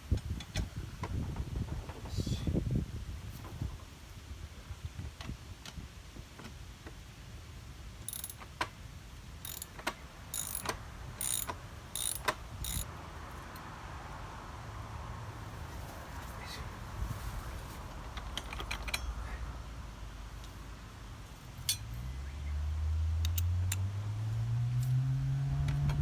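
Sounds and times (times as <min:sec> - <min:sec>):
metallic clicks and clinks: 0:08.1 - 0:08.5, 0:09.4 - 0:13.7, 0:18.2 - 0:19.2.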